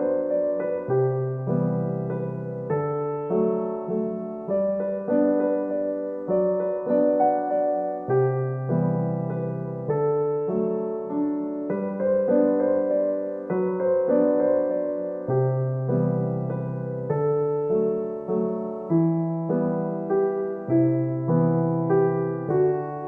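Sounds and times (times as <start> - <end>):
gentle solo piano piece: 0.0 - 23.0.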